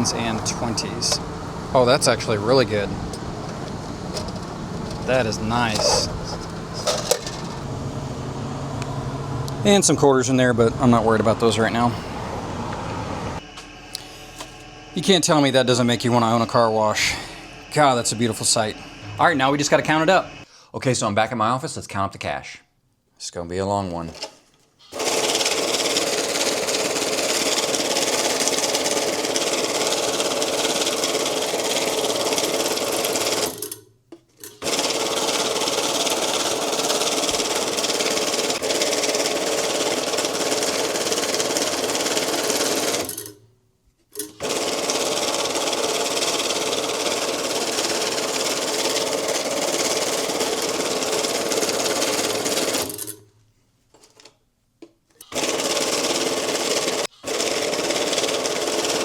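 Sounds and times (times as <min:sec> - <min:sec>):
banknote counting machine riffling: 0:00.0 - 0:07.7, 0:24.1 - 0:33.8, 0:34.4 - 0:43.4, 0:44.2 - 0:53.2, 0:55.2 - 0:59.0.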